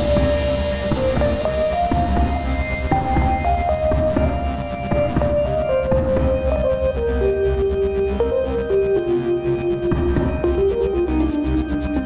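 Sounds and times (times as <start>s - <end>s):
melody over bass and beat: 9.4s - 12.0s.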